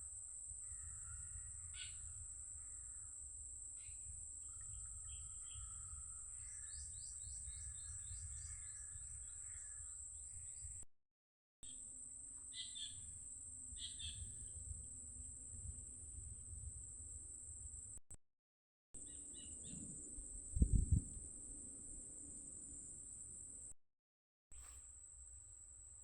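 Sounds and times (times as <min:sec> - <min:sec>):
birds chirping and trilling: 0:03.8 - 0:10.8, 0:13.8 - 0:14.6.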